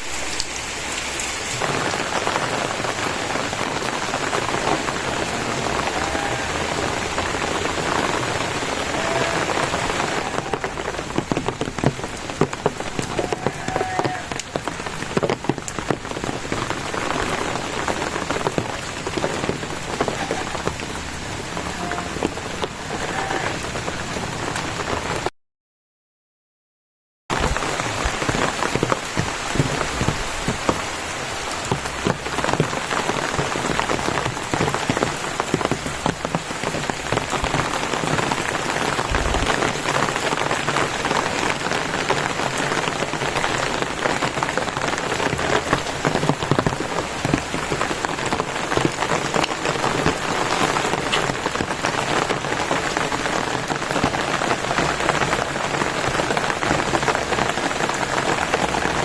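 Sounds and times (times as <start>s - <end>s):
heavy rain falling: 0.0s - 25.3s, 27.3s - 59.0s
raindrops striking close by: 0.0s - 25.3s, 27.3s - 59.0s.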